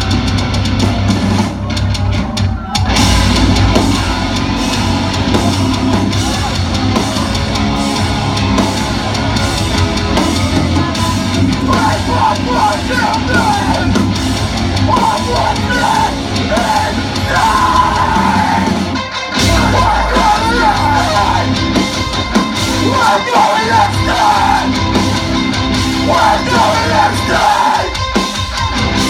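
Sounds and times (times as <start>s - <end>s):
metal band playing loud: 0.0s - 29.0s
person yelling vocals: 11.6s - 14.0s, 14.9s - 18.8s, 19.4s - 21.6s, 22.8s - 24.8s.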